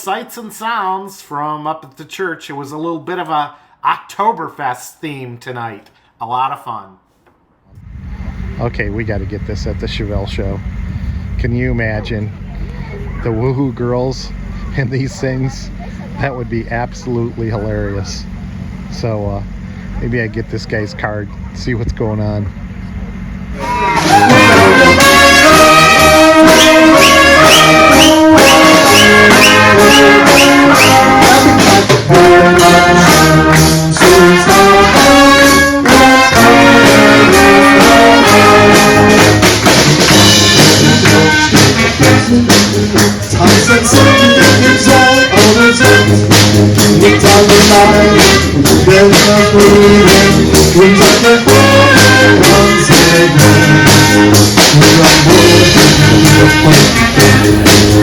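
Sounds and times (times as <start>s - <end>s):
brass band playing: 23.5s - 58.0s.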